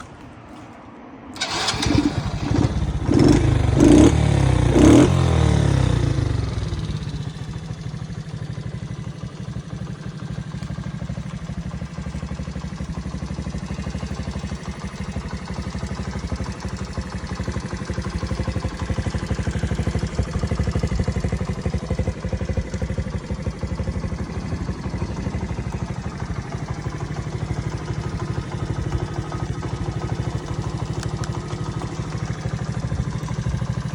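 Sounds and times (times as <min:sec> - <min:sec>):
small motorcycle engine revving: 0:01.4 - 0:07.4.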